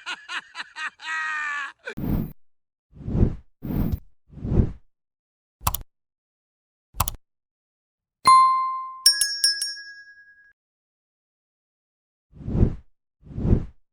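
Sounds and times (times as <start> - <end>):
short clicks: 5.6 - 5.9, 7.0 - 7.2
ringing ding: 8.3 - 10.5
tinkling bell strikes: 8.3 - 10.5.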